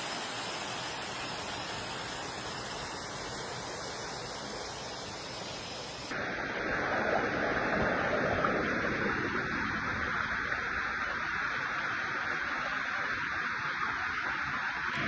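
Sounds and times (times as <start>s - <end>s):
waterfall rushing: 0.0s - 6.1s.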